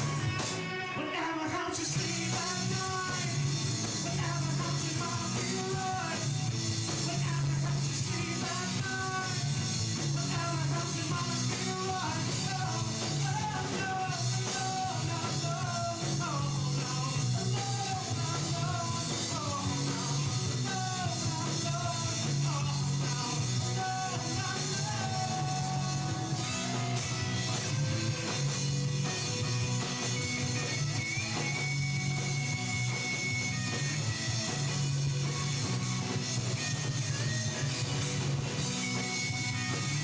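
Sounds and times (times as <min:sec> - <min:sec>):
bass guitar: 0:00.0 - 0:40.0
drums: 0:00.0 - 0:40.0
electric guitar: 0:00.0 - 0:40.0
rock band playing: 0:00.0 - 0:40.0
person singing: 0:00.5 - 0:06.3, 0:10.2 - 0:26.8.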